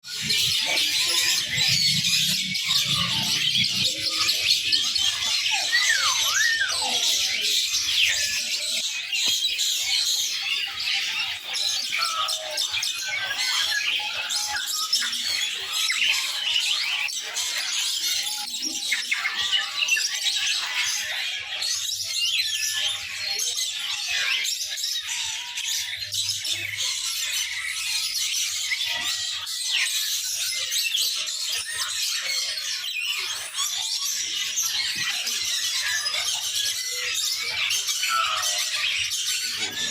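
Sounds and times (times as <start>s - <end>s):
songbirds chirping and squawking: 0.0s - 39.9s.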